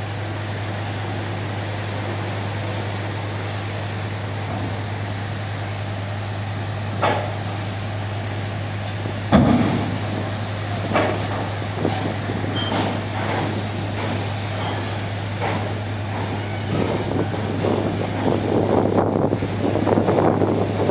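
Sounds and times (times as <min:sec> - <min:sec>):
ferry engine hum: 0:00.0 - 0:20.9
metallic clanks and knocks: 0:07.0 - 0:07.5, 0:08.9 - 0:18.4.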